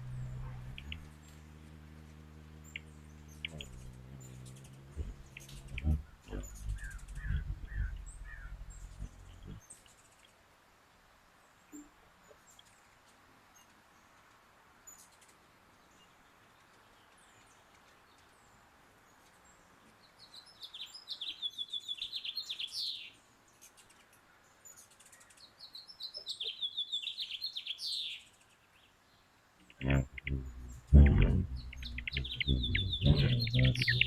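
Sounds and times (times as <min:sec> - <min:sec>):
hummingbird chittering: 0:00.0 - 0:09.7, 0:29.7 - 0:34.0
light rain hiss: 0:00.0 - 0:34.0.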